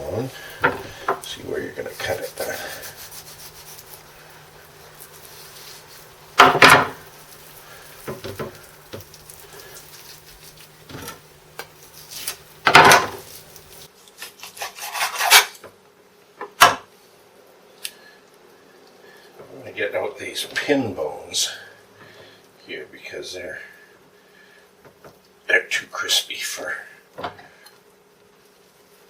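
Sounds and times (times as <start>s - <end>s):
loud knocks and scrapes: 0.6s - 1.3s, 5.5s - 7.1s, 12.1s - 13.4s
knife cutting meat from bone: 1.9s - 4.1s.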